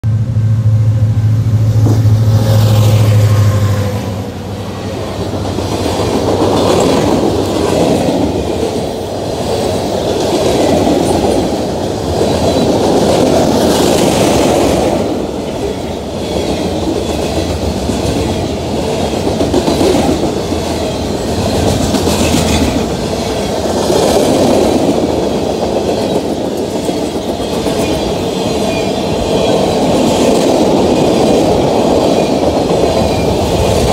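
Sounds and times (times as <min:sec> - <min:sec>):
loud low drone: 0:00.0 - 0:05.3
freight train rumbling past: 0:00.0 - 0:33.9
wheels clacking on rails: 0:00.7 - 0:33.9.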